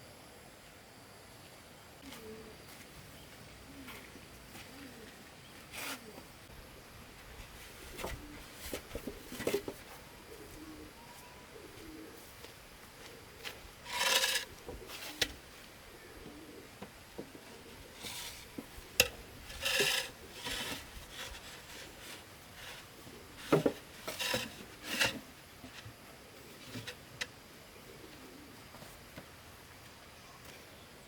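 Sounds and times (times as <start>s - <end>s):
scraping wood by hand: 13.4s - 15.4s, 17.8s - 25.9s.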